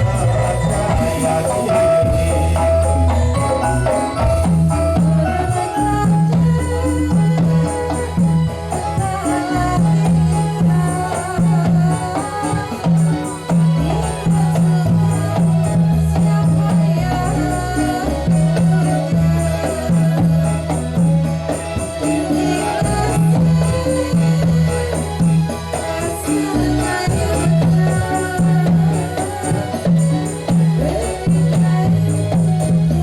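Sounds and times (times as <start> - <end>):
melody line: 0.0 - 6.6
jingling: 0.0 - 32.9
low drums beating: 0.0 - 33.0.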